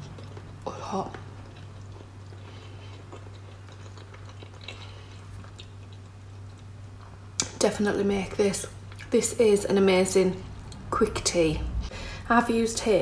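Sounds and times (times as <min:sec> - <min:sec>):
person chewing soft mouth sounds: 0:00.0 - 0:07.5
steady low hum: 0:00.0 - 0:13.0.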